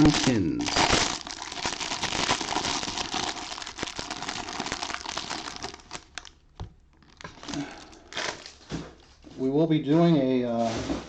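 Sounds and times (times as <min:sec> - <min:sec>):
wrapper crinkling and tearing: 0:00.0 - 0:09.1.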